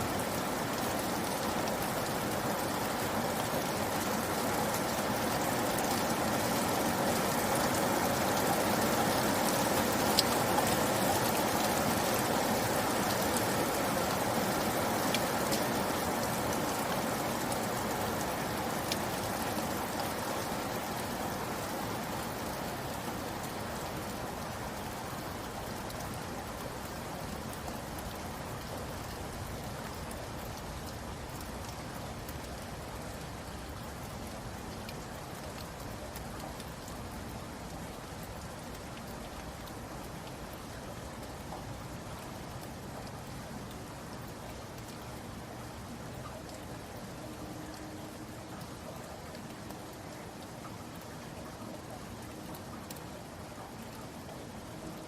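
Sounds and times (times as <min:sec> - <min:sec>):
separate raindrops: 0:00.0 - 0:55.0
steady rain pattering: 0:00.0 - 0:55.0.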